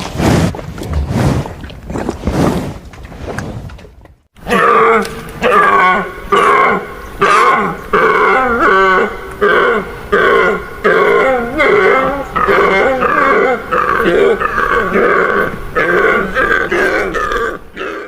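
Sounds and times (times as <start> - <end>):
animal calling: 4.4 - 18.0.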